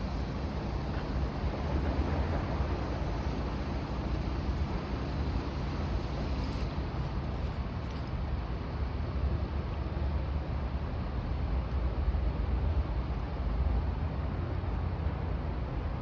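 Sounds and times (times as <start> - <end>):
ship engines rumbling: 0.1 - 6.4.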